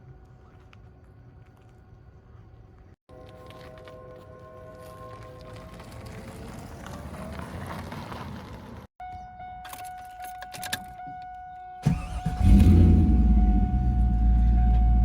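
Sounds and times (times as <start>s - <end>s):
car engine cranking and idling: 11.8s - 15.0s.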